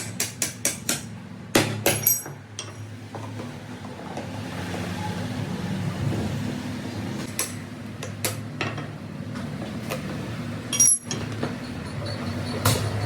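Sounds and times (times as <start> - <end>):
hand tools clinking on metal: 1.9 - 2.9, 10.7 - 13.0.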